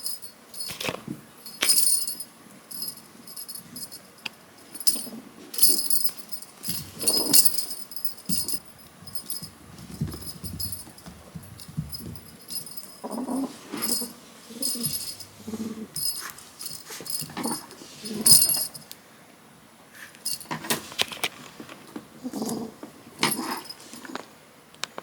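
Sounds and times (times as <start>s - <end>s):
small bell jingling: 0.0s - 0.8s, 1.4s - 18.9s, 20.2s - 20.6s, 23.2s - 24.0s.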